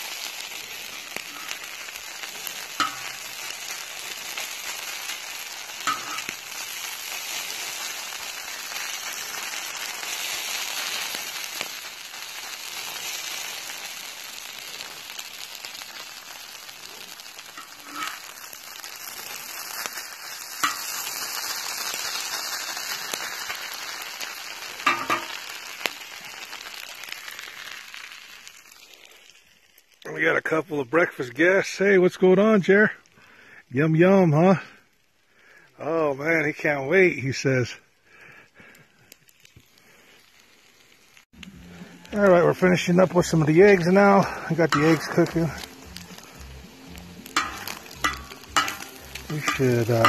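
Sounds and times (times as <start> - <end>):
food sizzling on griddle: 0.0 - 30.5, 38.6 - 50.0
metal spatula clacking: 2.8 - 3.2, 5.8 - 6.4, 17.6 - 18.3, 20.6 - 20.9, 24.9 - 25.4, 47.4 - 50.0.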